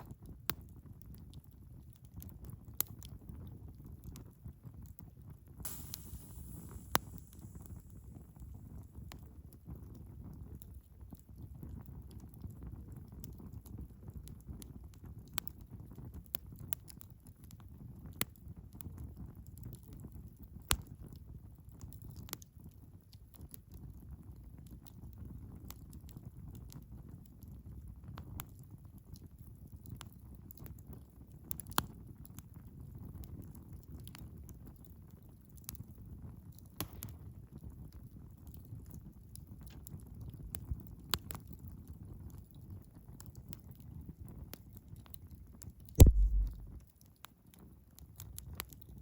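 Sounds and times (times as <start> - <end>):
low fire rumble: 0.0 - 21.8, 46.0 - 46.8
wood fire crackling and popping: 5.6 - 22.5, 24.6 - 46.9.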